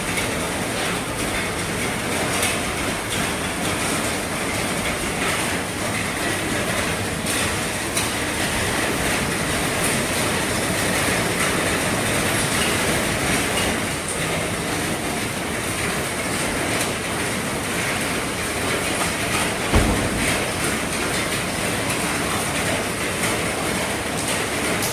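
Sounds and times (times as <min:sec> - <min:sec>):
heavy rain on a roof: 0:00.0 - 0:24.9.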